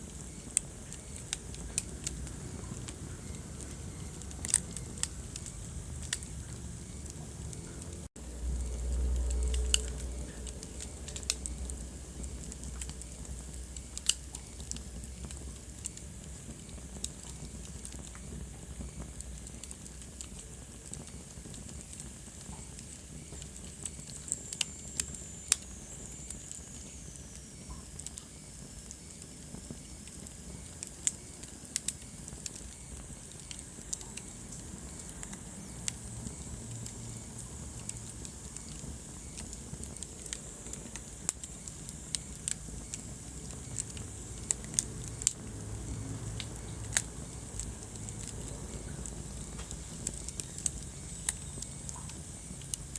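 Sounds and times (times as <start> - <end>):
wood fire crackling: 0.0 - 52.9
low rumble: 1.3 - 15.6.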